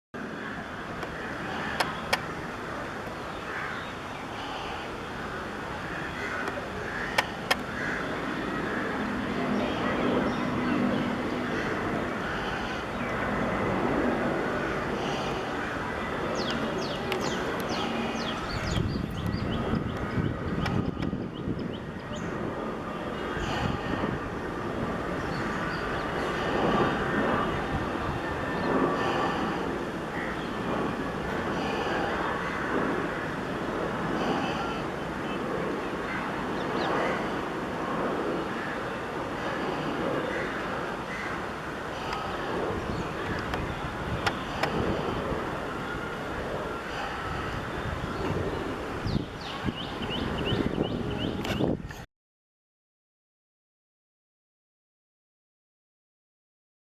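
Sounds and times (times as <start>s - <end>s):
jet engines rumbling: 0.2s - 51.8s
steady background noise: 0.2s - 51.8s
crows cawing: 5.9s - 8.8s, 31.4s - 33.5s, 40.2s - 42.4s.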